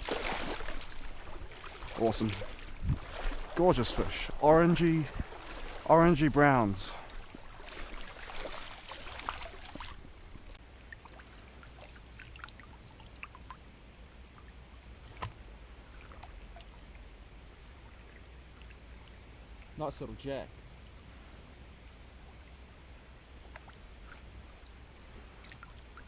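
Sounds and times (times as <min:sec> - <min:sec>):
small stream trickling: 0:00.0 - 0:26.0
faint ticks: 0:12.2 - 0:17.0.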